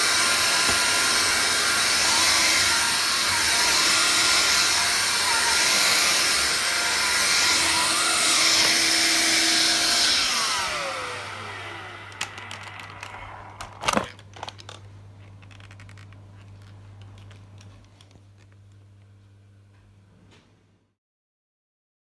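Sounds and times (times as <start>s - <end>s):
vacuum motor whine: 0.0s - 14.2s.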